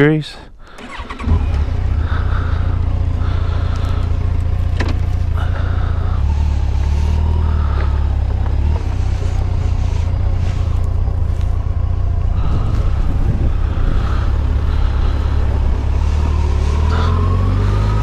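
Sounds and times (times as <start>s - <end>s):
motorcycle engine running: 0.7s - 18.0s.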